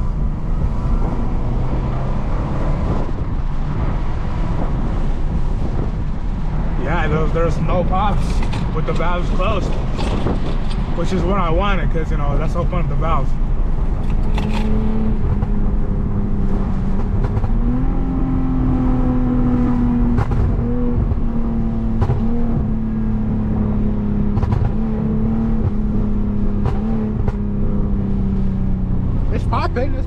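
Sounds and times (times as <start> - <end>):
sharp exhaust pops: 0.0 - 6.7, 16.4 - 17.7, 20.0 - 21.2, 24.2 - 25.8, 26.5 - 27.6
car engine and exhaust running: 0.0 - 30.0.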